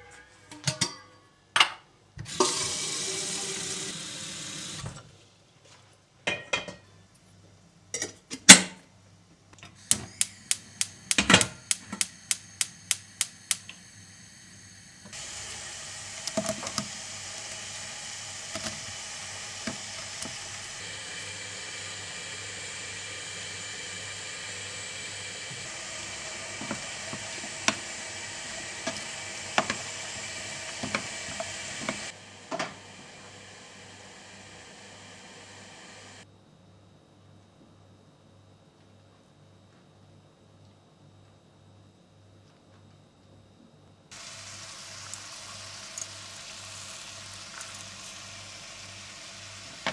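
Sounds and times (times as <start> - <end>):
run of even clicks: 9.9 - 13.7
steady hiss: 9.9 - 15.4, 44.1 - 49.9.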